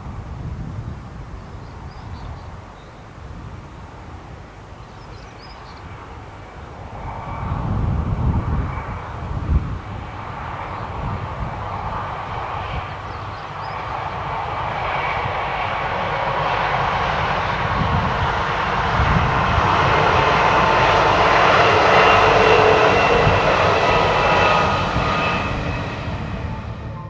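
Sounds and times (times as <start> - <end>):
diesel train passing: 5.4 - 27.0.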